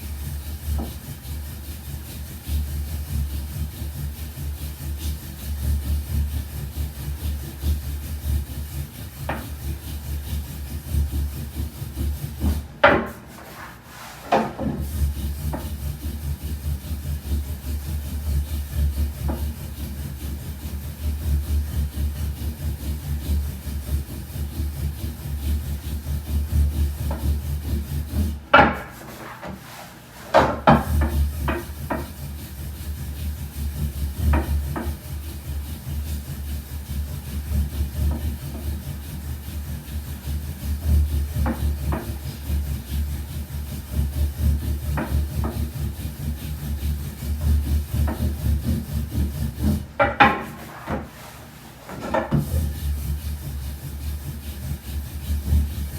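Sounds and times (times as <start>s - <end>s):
rolling pin rolling dough: 0.0s - 55.9s
rolling pin knocking on board: 9.2s - 9.6s, 12.4s - 14.8s, 28.5s - 32.2s, 49.6s - 52.7s.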